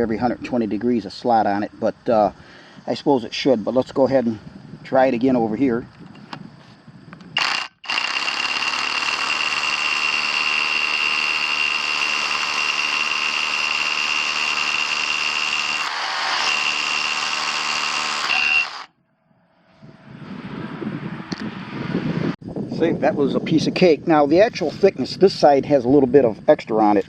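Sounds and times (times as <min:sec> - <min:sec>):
rotary hammer drilling masonry: 0:07.4 - 0:18.9.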